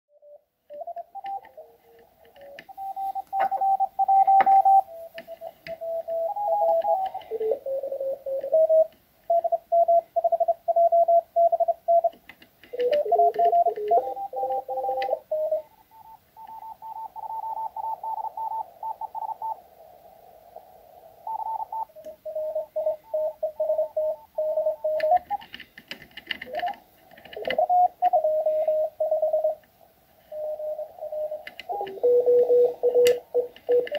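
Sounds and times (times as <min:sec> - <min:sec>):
radio crackle: 0:00.8 - 0:12.1, 0:12.7 - 0:33.9
morse code beeps: 0:02.7 - 0:12.1, 0:12.8 - 0:19.6, 0:21.3 - 0:25.4.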